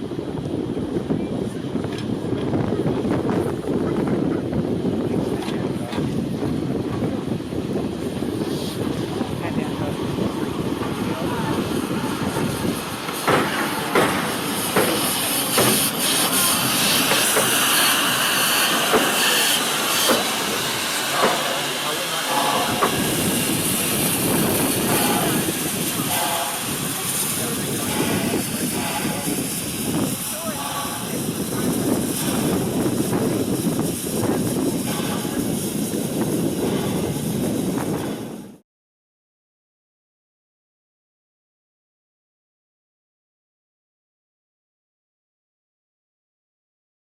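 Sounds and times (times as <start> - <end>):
steam locomotive exhaust chuffs: 3.2 - 38.6
steam hissing: 6.0 - 38.6.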